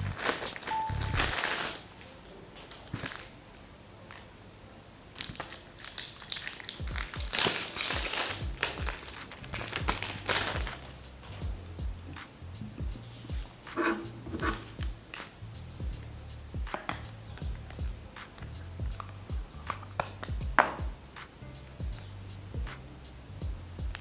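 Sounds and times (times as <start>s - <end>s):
background music: 0.0s - 1.6s, 6.8s - 24.0s
plastic packaging crinkling: 0.0s - 4.3s, 5.1s - 10.9s.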